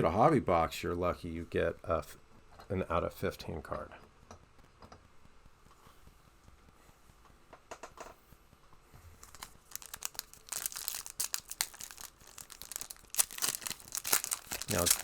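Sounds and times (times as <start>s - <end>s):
plastic wrapper crinkling and tearing: 9.2s - 15.0s.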